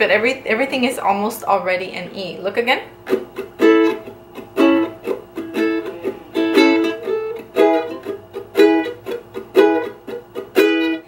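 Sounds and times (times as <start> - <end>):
ukulele strummed reggae style: 3.0 - 11.0.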